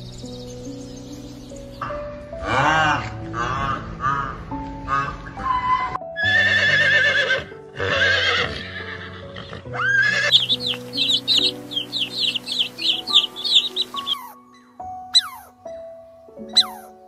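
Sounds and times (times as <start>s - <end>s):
piano music: 0.0s - 17.0s
horse whinnying: 5.5s - 10.4s
chicks peeping rapidly: 10.3s - 14.4s, 15.1s - 15.5s, 16.6s - 16.9s.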